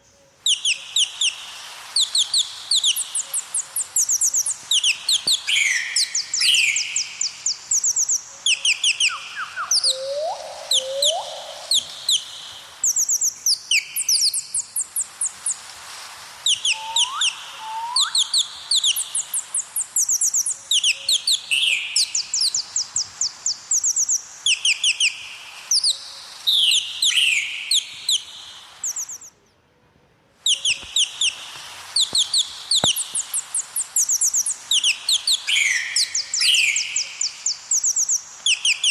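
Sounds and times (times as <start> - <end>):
small birds chirping trills: 0.0 - 29.6, 30.4 - 38.9
short rising bird whistles: 2.0 - 15.6, 16.5 - 21.8, 30.5 - 37.1.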